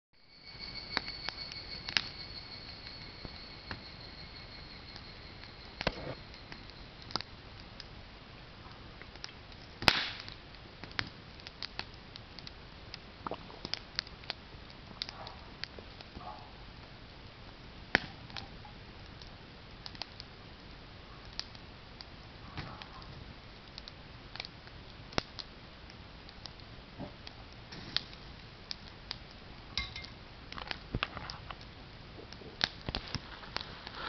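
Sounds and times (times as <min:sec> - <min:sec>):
cicada call: 0:00.2 - 0:07.0
bonfire crackling and popping: 0:00.3 - 0:34.0.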